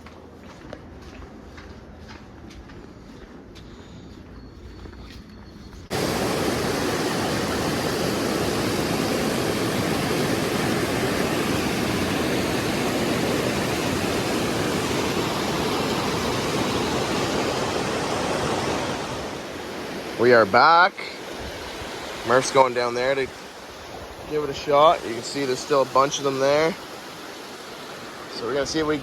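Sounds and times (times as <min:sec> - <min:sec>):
river water rushing: 0:05.9 - 0:29.0.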